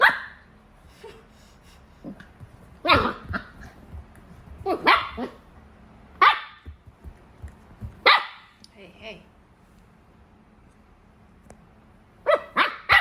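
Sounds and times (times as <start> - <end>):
puppy barking: 0.0 - 0.4, 2.8 - 3.8, 4.6 - 5.5, 6.2 - 6.8, 7.9 - 8.5, 12.2 - 13.0
puppy yipping: 4.7 - 5.4, 12.3 - 13.0.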